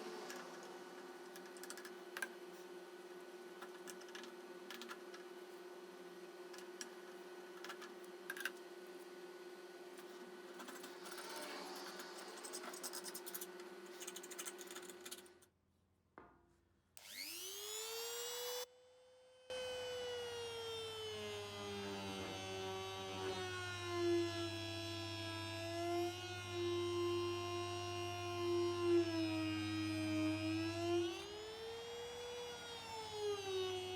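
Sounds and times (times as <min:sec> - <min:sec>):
electric power tool whining: 0:17.0 - 0:18.9, 0:19.5 - 0:33.9.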